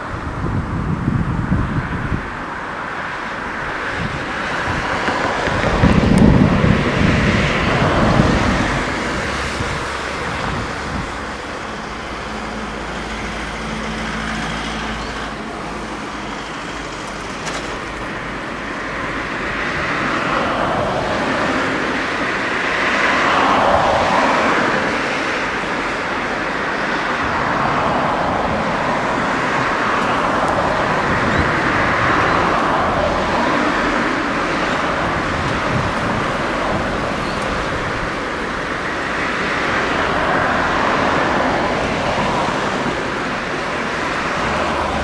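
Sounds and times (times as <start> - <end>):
engine and rushing noise: 0.0 - 45.0
wind buffeting microphone: 0.0 - 45.0.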